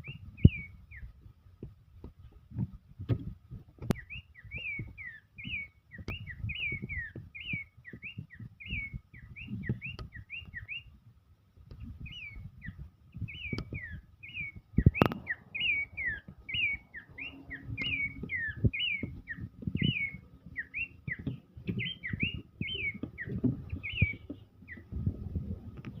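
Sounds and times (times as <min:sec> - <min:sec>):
bird singing whistled notes: 0:00.0 - 0:01.2, 0:03.9 - 0:11.0, 0:11.9 - 0:25.1
low knocks and thumps: 0:00.0 - 0:10.6, 0:11.5 - 0:26.0
sharp click: 0:15.0 - 0:15.4.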